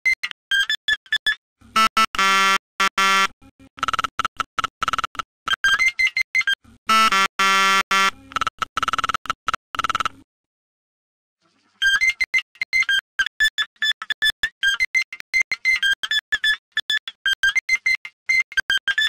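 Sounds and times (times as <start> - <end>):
fast electronic beeps: 3.8 - 6.6, 7.9 - 10.2.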